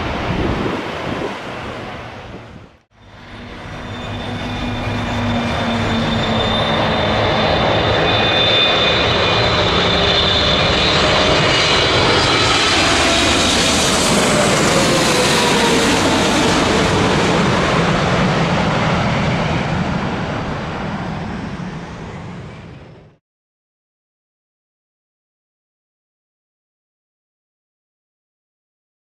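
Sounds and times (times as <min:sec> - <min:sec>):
jet engines roaring: 0:00.0 - 0:23.2.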